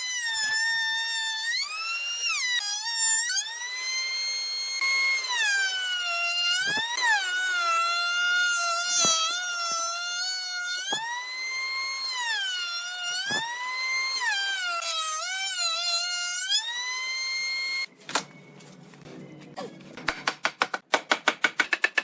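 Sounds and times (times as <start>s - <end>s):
power tool motor whining: 0.0s - 17.9s.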